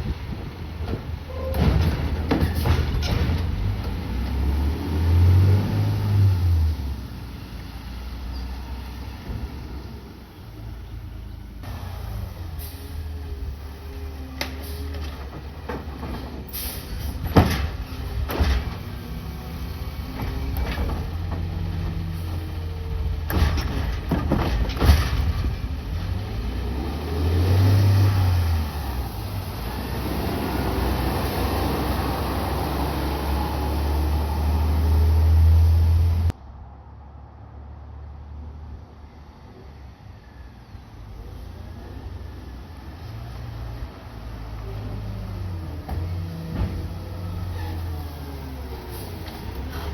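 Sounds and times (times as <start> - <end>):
garbage truck running: 0.0 - 36.3, 44.2 - 49.9
metallic clanks and bangs: 1.4 - 3.8, 15.0 - 19.0, 23.2 - 25.8.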